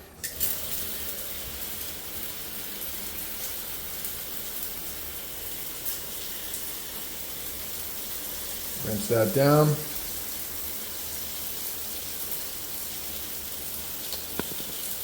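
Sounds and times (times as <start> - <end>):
water running from a tap: 0.0 - 15.0
water flowing down a drain: 0.2 - 15.0.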